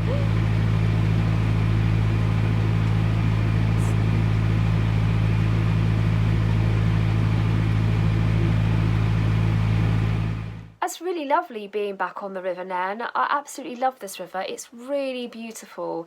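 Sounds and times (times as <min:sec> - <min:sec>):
diesel engine droning: 0:00.0 - 0:10.8.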